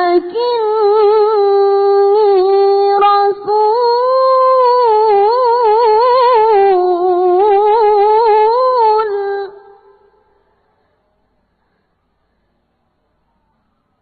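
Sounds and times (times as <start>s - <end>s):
echo: 7.3s - 14.0s.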